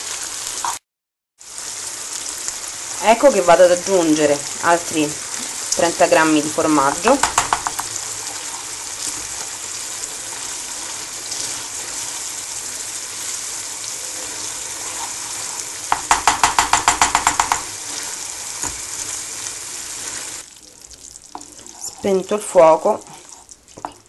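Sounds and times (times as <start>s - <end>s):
food sizzling in a frying pan: 0.0s - 0.8s, 1.4s - 24.0s
wooden spoon stirring: 6.9s - 20.4s, 21.0s - 24.0s.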